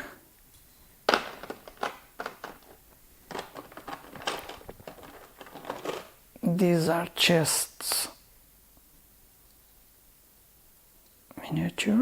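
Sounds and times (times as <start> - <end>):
packaging rustling: 1.0 - 6.2
plastic miniatures clicking: 1.1 - 6.1.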